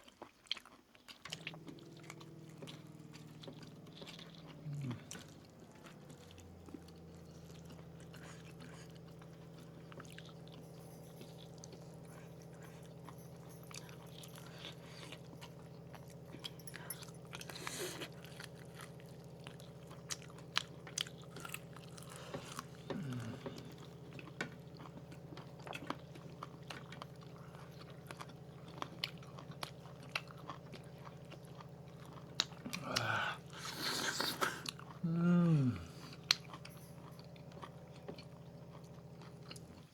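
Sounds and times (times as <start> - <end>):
chewing roast chicken: 0.0 - 39.9
steady low hum: 1.2 - 39.9
person humming: 4.6 - 5.2, 22.8 - 23.8, 32.7 - 36.2.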